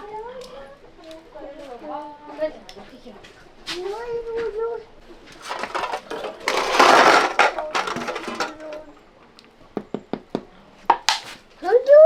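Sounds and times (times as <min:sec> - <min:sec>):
clattering rustling noise: 0:05.3 - 0:09.0.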